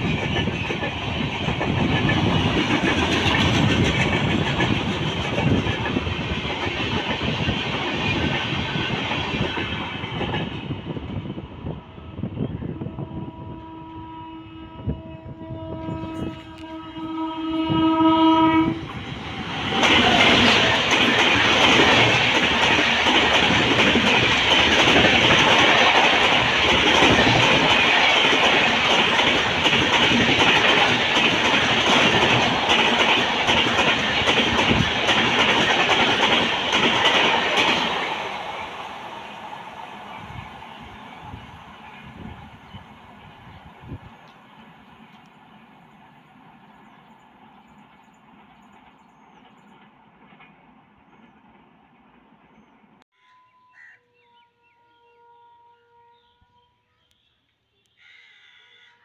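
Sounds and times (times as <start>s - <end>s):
train wheels clattering: 0.0s - 10.8s, 18.8s - 38.8s
train horn: 11.6s - 18.9s, 53.1s - 56.9s.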